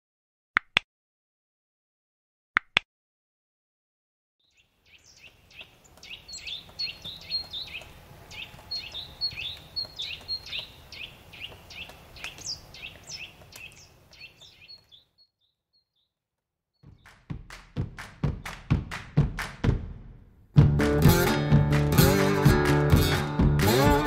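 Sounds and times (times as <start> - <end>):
bird chirps: 4.4 - 16.2.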